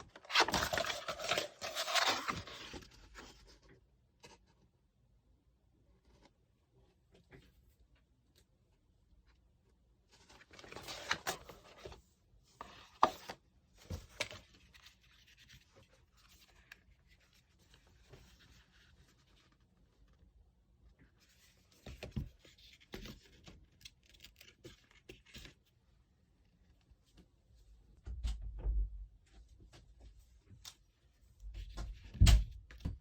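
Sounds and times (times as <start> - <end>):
packaging rustling and tearing: 0.0 - 3.0.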